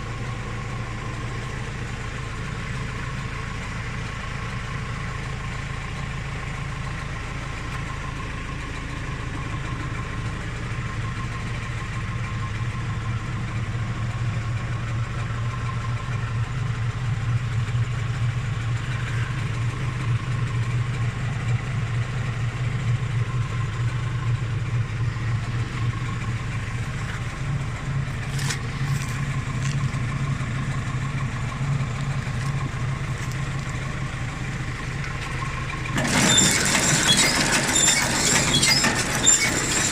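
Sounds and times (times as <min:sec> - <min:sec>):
tractor engine running: 0:00.0 - 0:39.9
baler drive whining: 0:17.4 - 0:39.9.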